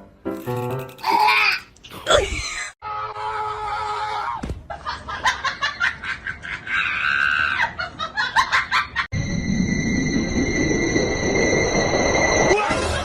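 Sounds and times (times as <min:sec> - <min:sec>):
person laughing and shrieking: 0:06.3 - 0:08.0
high-pitched hum: 0:09.2 - 0:12.7.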